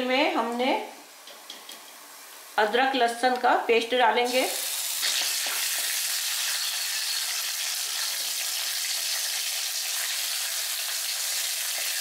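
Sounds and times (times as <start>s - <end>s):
paste sizzling in hot oil: 4.3s - 12.0s.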